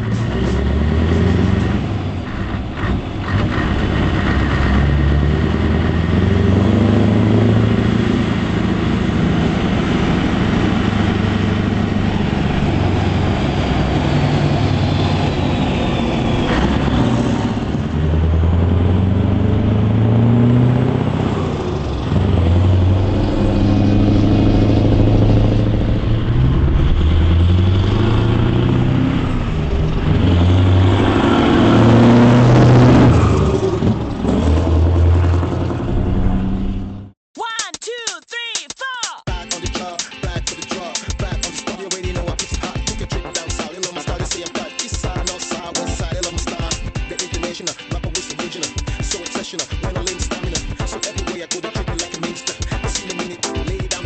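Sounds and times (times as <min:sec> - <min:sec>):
truck diesel engine revving: 0:00.0 - 0:37.2.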